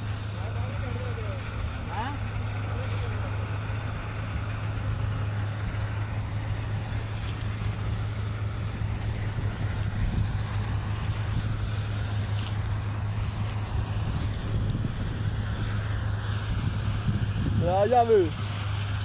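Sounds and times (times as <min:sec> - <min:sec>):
farm machinery engine humming: 0:00.0 - 0:19.0
wind on microphone: 0:07.6 - 0:17.8.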